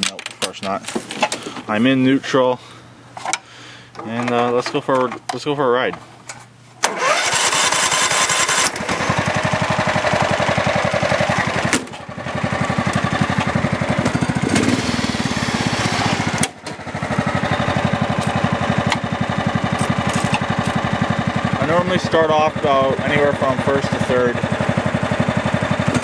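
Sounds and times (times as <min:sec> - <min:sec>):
tractor engine running: 0:06.9 - 0:26.0.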